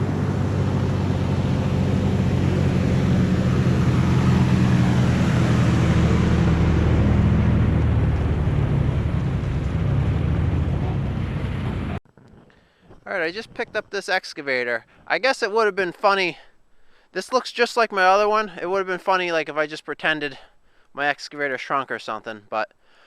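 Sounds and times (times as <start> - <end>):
large engine humming: 0.0 - 12.0.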